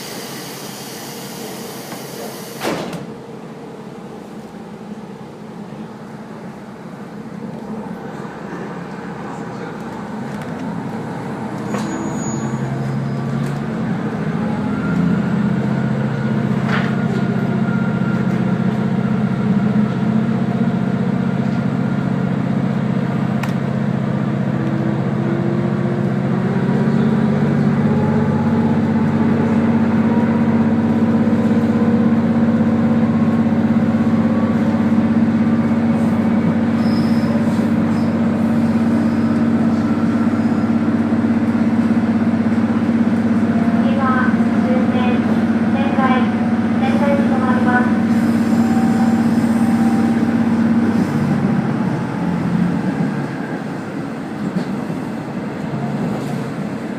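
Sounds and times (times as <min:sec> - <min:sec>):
train running gear: 0:00.0 - 0:03.2
diesel railcar engine: 0:00.0 - 0:56.9.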